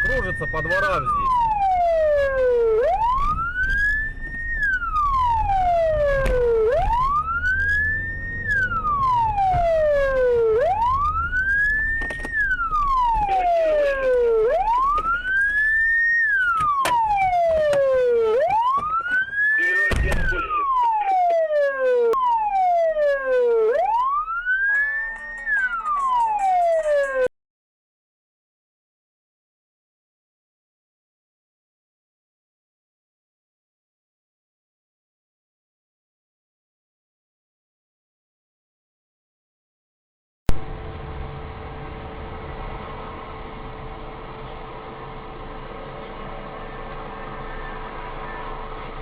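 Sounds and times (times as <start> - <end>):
police siren wailing: 0.0 - 27.3, 46.5 - 49.0
low rumble: 40.5 - 49.0.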